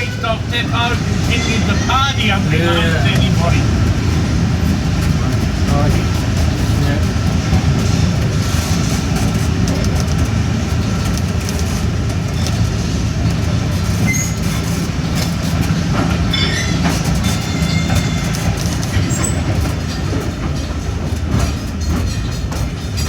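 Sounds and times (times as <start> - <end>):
high wheel squeals: 0.0 - 3.8, 14.0 - 14.8
train rumbling on rails: 0.0 - 23.0
wheels clickety-clack: 0.0 - 23.0.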